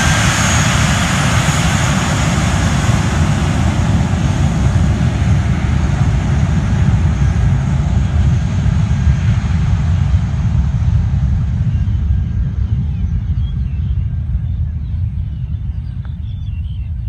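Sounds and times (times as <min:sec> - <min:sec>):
airliner engine roar: 0:00.0 - 0:17.0.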